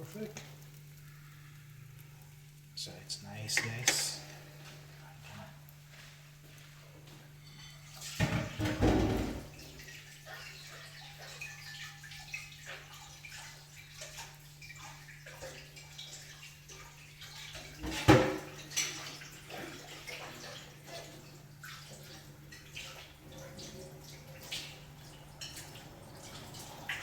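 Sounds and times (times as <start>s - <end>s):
pancakes frying in oil: 0.0s - 27.0s.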